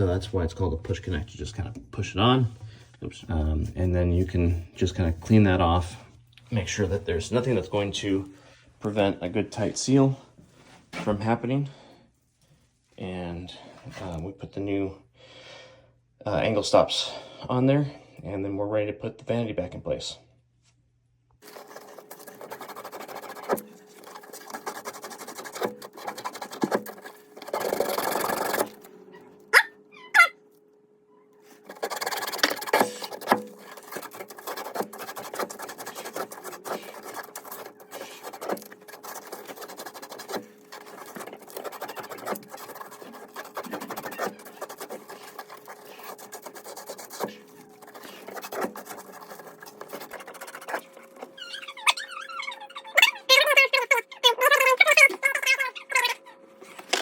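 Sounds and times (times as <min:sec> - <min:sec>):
short squeaks: 0:51.2 - 0:53.2.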